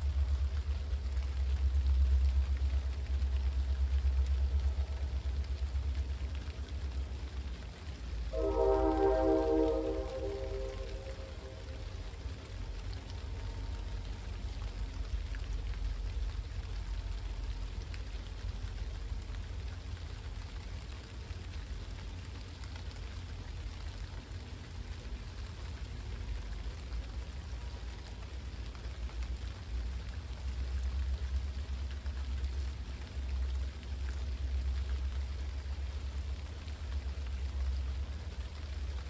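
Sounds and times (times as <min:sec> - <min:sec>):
deep low rumble: 0:00.0 - 0:22.2
steady rain falling: 0:00.0 - 0:39.0.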